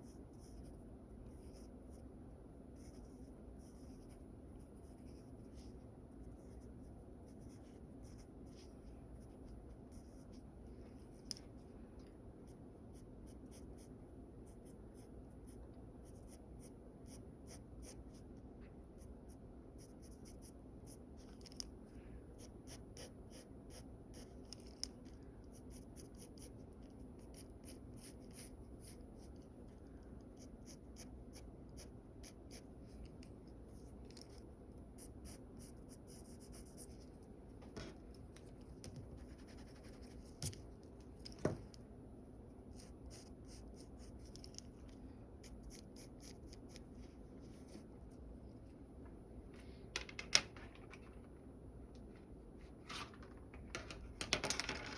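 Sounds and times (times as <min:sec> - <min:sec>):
pencil scratching on paper: 0:02.7 - 0:10.4, 0:35.0 - 0:37.0, 0:39.1 - 0:40.6.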